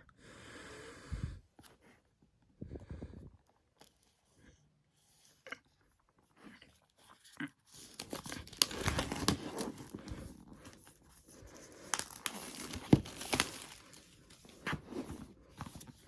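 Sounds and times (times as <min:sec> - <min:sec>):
cardboard and paper rustling: 0:07.7 - 0:16.0.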